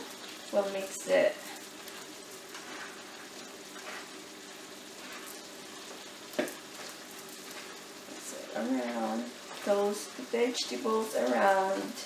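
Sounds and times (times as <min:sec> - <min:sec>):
food sizzling in a skillet: 0:00.0 - 0:12.0.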